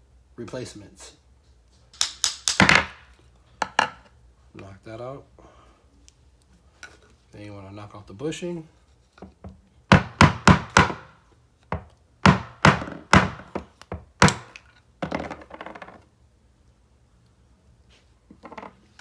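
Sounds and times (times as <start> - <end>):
sharp knocks on metal bushing: 9.9 - 11.1.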